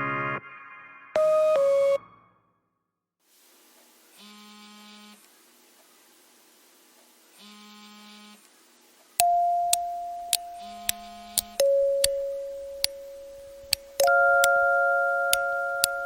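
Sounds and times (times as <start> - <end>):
quiet electronic buzzes: 3.7 - 16.0
sharp ticks: 9.2 - 14.6.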